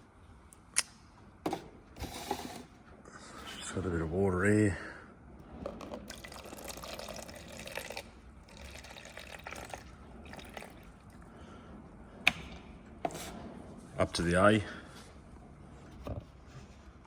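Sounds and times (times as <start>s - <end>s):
water pouring into cup: 5.8s - 11.2s.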